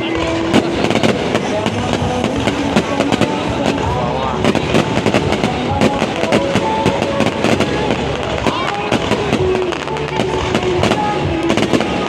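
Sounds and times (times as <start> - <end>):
fireworks bangs and crackles: 0.0 - 12.0
fireworks whistling: 0.0 - 12.0.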